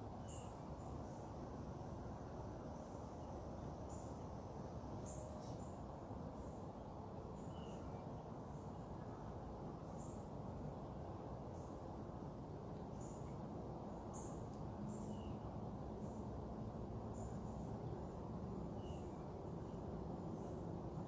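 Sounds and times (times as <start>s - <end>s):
lower bird chirps: 0.2s - 1.2s, 7.3s - 8.0s, 12.9s - 16.2s, 17.1s - 20.6s.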